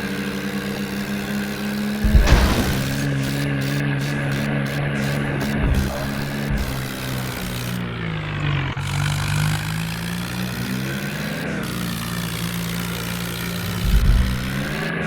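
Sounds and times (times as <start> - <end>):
tractor engine revving: 0.0 - 15.0
low thuds: 2.0 - 8.4, 13.7 - 14.9.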